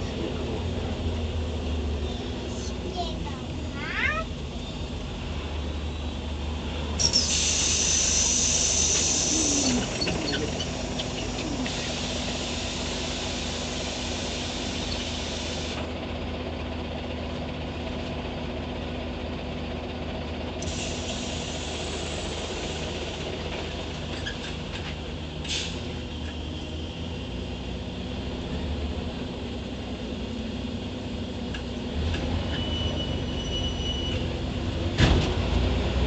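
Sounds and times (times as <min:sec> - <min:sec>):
bus diesel engine running: 0:00.0 - 0:36.0
air brake hiss: 0:07.0 - 0:09.8, 0:11.7 - 0:15.8, 0:20.6 - 0:23.0, 0:25.4 - 0:25.8.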